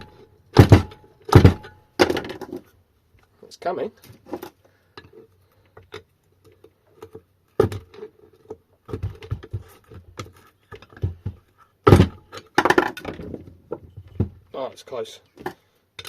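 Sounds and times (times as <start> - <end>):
sharp knocks on metal: 0.0 - 2.4.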